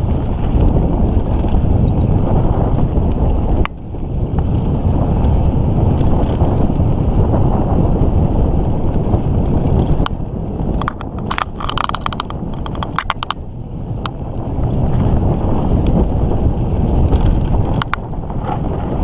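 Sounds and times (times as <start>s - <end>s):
bike clicks and rattles: 0.0s - 19.0s
bike tyres rumbling: 0.0s - 19.0s
wind on microphone: 0.0s - 19.0s.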